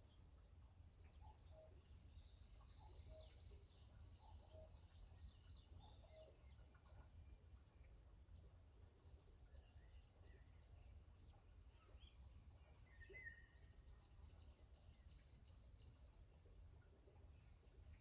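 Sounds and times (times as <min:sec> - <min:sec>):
small birds twittering: 0:00.0 - 0:08.3, 0:09.1 - 0:18.0.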